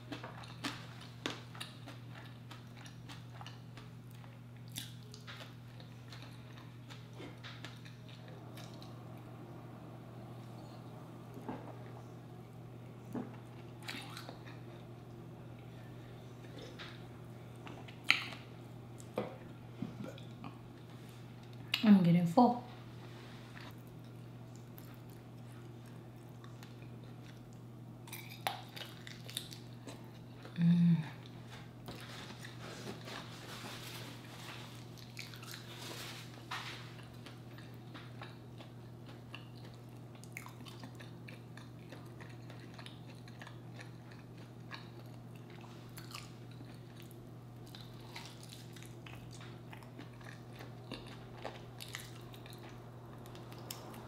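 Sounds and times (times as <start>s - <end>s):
chewing and biting chicken: 0.0s - 8.9s, 24.5s - 30.6s, 34.7s - 36.1s, 36.9s - 54.0s
steady low hum: 0.0s - 54.0s.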